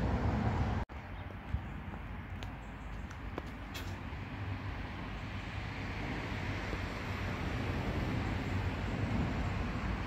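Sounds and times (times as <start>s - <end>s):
distant train rumbling: 3.2s - 10.0s.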